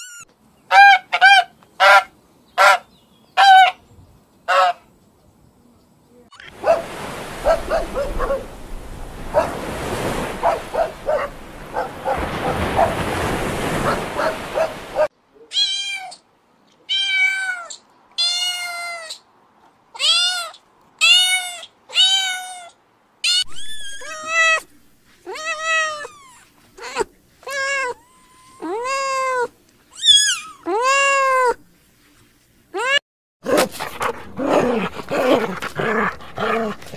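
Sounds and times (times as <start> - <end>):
kittens meowing: 23.3 - 24.6, 25.3 - 31.6.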